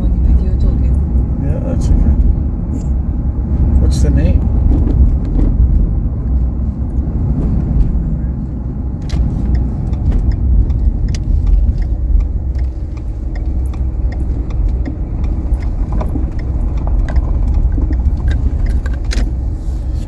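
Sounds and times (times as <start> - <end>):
car road rumble: 0.0 - 20.0
light clicks and rattles: 9.0 - 19.5.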